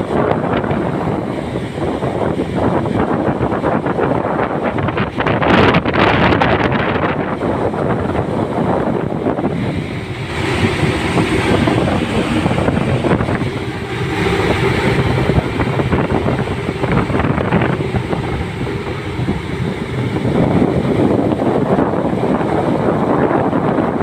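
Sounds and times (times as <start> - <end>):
low rumble from ship: 0.0 - 24.0
wind buffeting microphone: 0.0 - 24.0.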